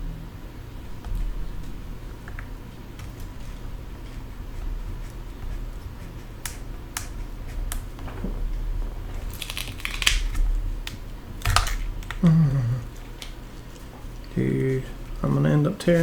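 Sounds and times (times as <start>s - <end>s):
steady low hum: 0.0s - 16.0s
person grunting: 12.2s - 12.9s.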